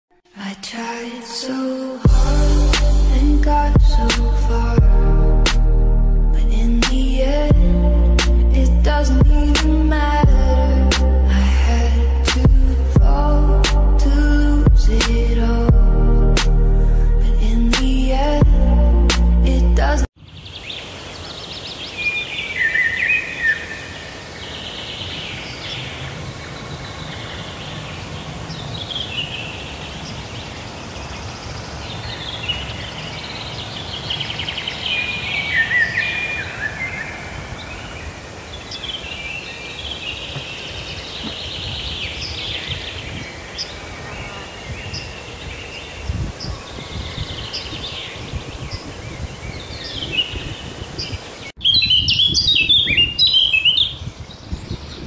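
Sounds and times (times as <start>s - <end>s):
birds singing and chirping: 20.1s - 55.0s.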